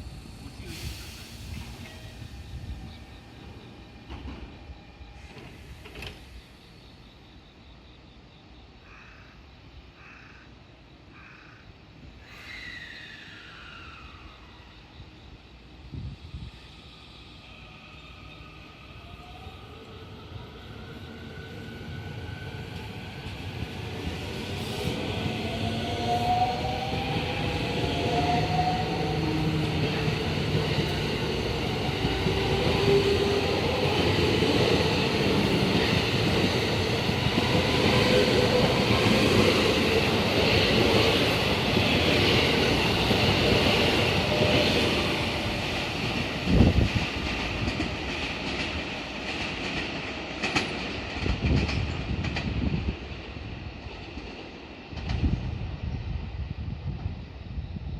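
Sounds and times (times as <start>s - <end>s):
train wheels clattering on rails: 4.0s - 4.6s, 5.2s - 6.4s, 24.0s - 55.6s.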